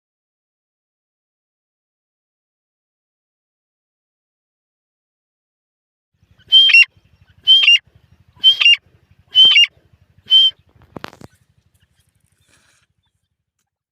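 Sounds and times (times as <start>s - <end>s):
francolin shrill calls: 6.3s - 12.6s.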